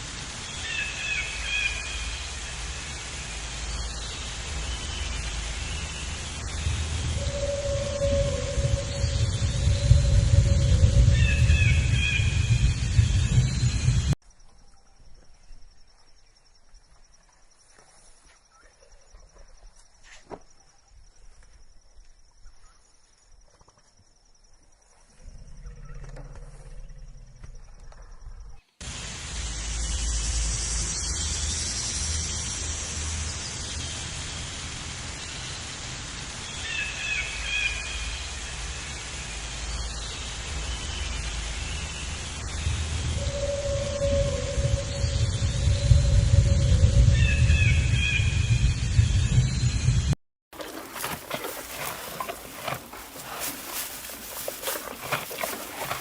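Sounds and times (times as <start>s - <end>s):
loud rumbling noise: 2.4s - 14.2s
steady hiss: 28.8s - 42.5s
high-pitched pulsing insect trill: 29.3s - 34.2s, 50.6s - 56.0s
animal calls: 50.6s - 56.0s
soft ticks and rustles: 50.6s - 56.0s.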